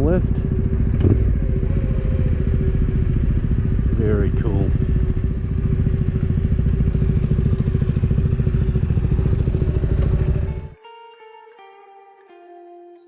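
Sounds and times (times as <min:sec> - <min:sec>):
motorcycle engine idling: 0:00.0 - 0:10.8.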